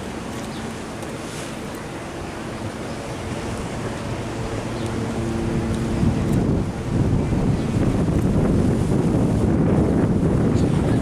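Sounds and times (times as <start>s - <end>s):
ocean surf washing ashore: 0.0s - 11.0s
wind on microphone: 2.7s - 11.0s.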